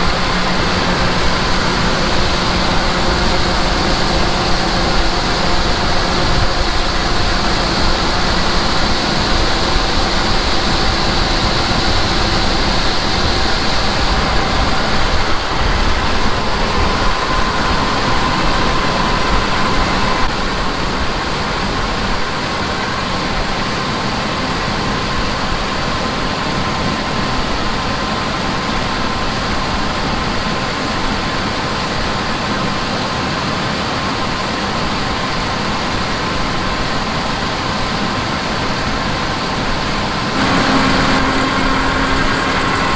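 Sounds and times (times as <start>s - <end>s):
heavy farm machinery running: 0.0s - 21.9s, 40.1s - 42.9s.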